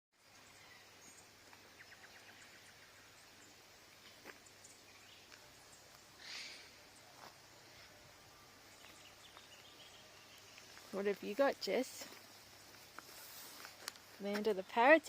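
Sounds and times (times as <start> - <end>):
distant bird chirps: 0.2 - 15.0.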